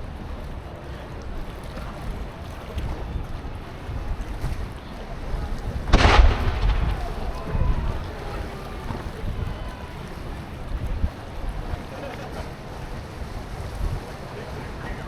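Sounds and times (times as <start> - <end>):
wind buffeting microphone: 0.0 - 15.0
sudden loud boom: 5.9 - 8.2.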